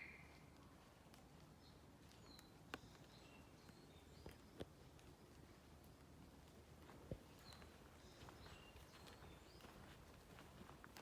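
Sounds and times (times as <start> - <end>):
faint bird chirps: 0.0 - 0.5
soft footsteps on a path: 0.0 - 11.0.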